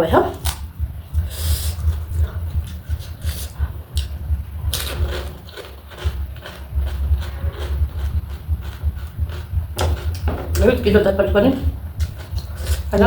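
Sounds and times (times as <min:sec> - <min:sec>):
crunchy food chewing: 0:00.3 - 0:00.7, 0:01.4 - 0:10.8.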